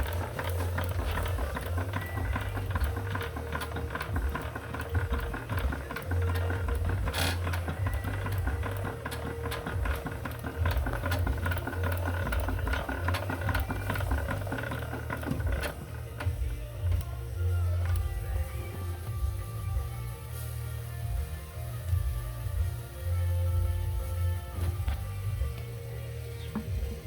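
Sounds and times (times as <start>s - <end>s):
model steam engine clattering: 0.0s - 19.0s
low background beat: 0.0s - 27.0s.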